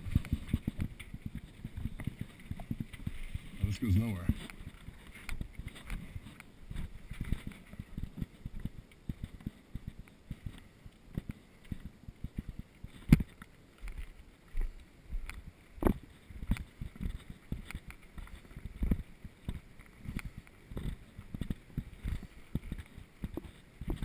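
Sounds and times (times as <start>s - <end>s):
bike rattling over rough ground: 0.0s - 14.7s.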